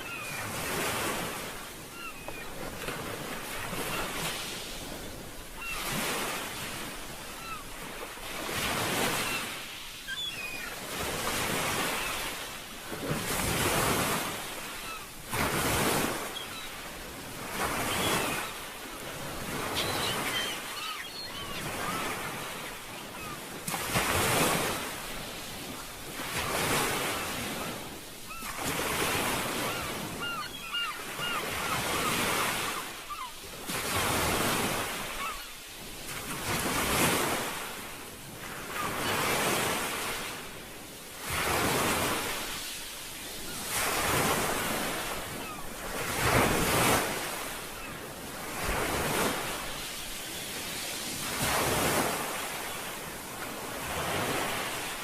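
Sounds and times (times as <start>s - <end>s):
sea waves washing: 0.0s - 55.0s.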